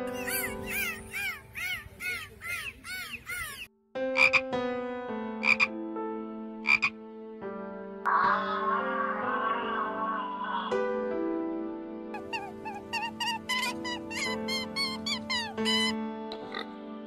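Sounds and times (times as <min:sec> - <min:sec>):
tree frog croaking: 0:04.2 - 0:04.4, 0:05.4 - 0:05.7, 0:06.6 - 0:06.9
dolphin whistling and clicking: 0:12.2 - 0:16.0.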